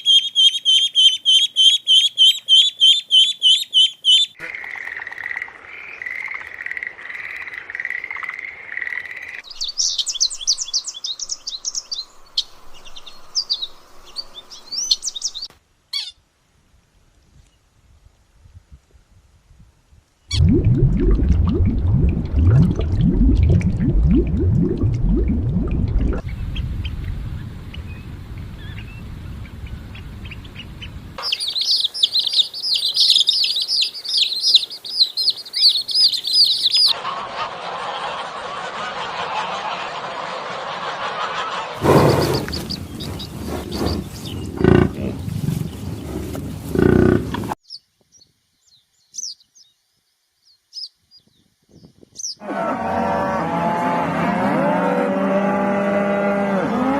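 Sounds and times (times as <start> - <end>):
high-pitched bird chirping: 31.2 - 37.0
animal sounds: 31.2 - 47.6.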